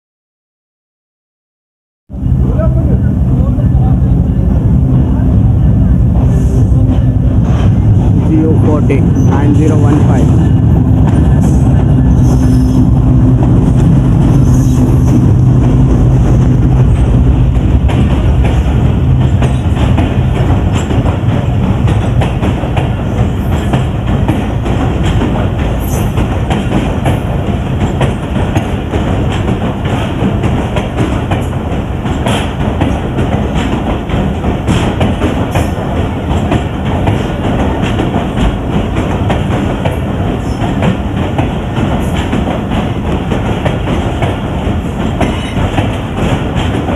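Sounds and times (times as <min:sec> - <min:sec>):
train rumble: 0:02.1 - 0:46.9
wheels clicking over rail joints: 0:17.8 - 0:46.9.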